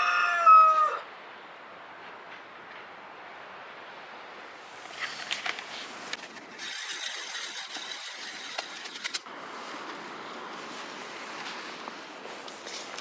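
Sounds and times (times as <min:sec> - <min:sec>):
steady background hiss: 0:00.0 - 0:13.0
rustling: 0:04.6 - 0:13.0.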